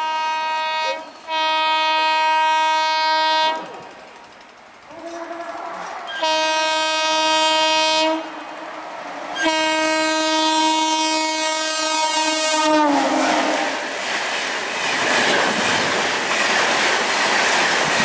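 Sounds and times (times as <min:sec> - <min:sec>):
train horn blasts: 0:00.0 - 0:03.7, 0:04.9 - 0:08.8, 0:09.4 - 0:13.9
train passing at speed: 0:00.0 - 0:18.0.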